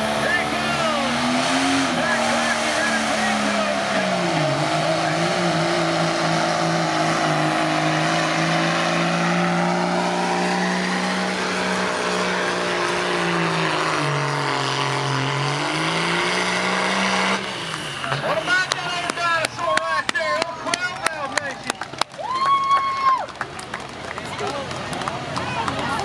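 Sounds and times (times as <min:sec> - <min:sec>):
engine running hard under load: 0:00.0 - 0:19.2.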